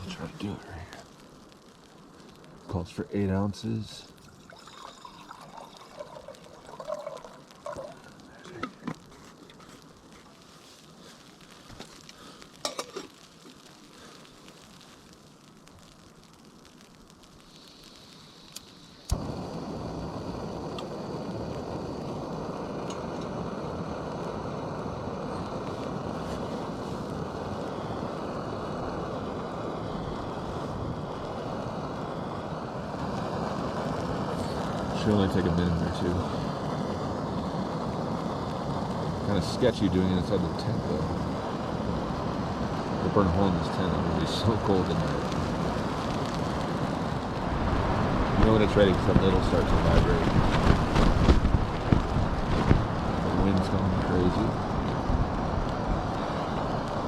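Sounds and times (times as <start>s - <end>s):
stove burner running: 0.0s - 14.9s, 17.5s - 57.0s
water pouring into a pot: 4.2s - 9.6s.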